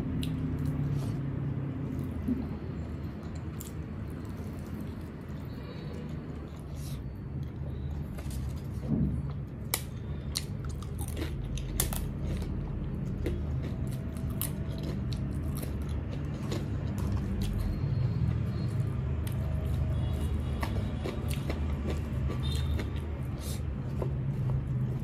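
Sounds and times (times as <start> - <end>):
steady low hum: 0.0 - 25.0
close-up chewing food: 8.1 - 25.0
sharp clicks and crunches: 9.6 - 17.6.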